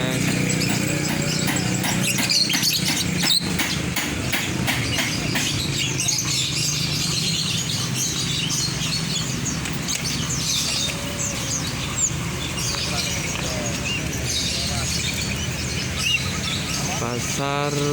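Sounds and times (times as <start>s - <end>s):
caged birds chirping: 0.0s - 17.9s
sharp knock: 0.2s - 5.7s.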